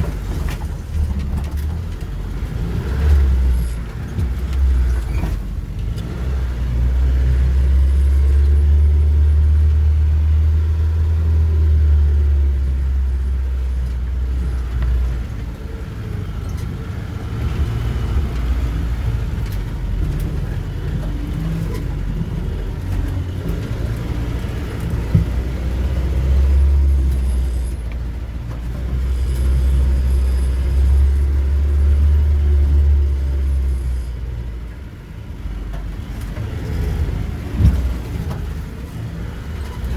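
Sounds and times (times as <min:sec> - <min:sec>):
car engine rumbling under load: 0:00.0 - 0:39.9.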